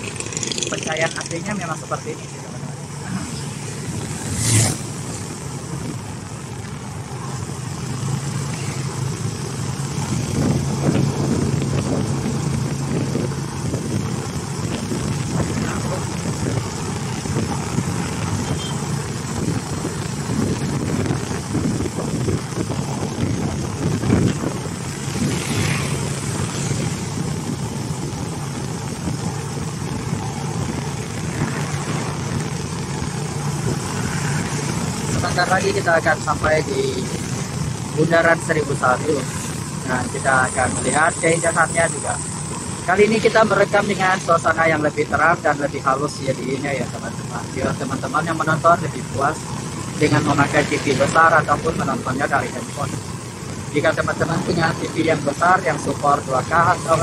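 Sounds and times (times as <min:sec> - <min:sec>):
engine hum: 0:00.0 - 0:57.0
wind noise: 0:09.8 - 0:41.2.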